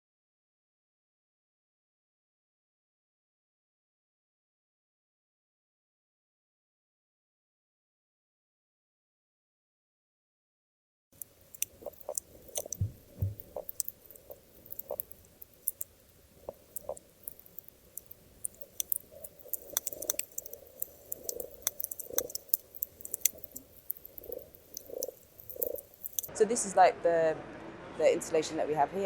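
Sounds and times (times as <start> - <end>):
fish grunts and pops: 11.2 - 26.3
sharp underwater clicks: 11.2 - 26.3
low thumps: 12.2 - 14.4.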